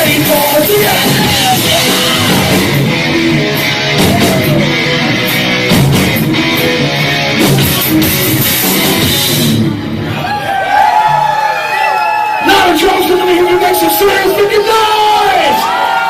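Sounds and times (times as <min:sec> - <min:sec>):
live heavy metal band: 0:00.0 - 0:11.3.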